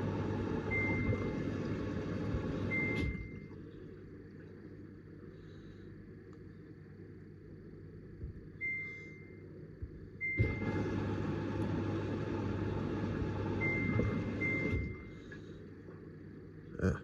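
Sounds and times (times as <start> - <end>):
washing machine water rushing: 0.0 - 3.7, 10.2 - 15.4.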